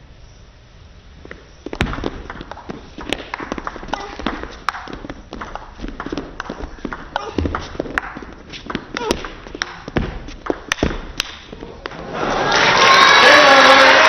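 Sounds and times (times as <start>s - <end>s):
spectators clapping: 11.9s - 14.0s.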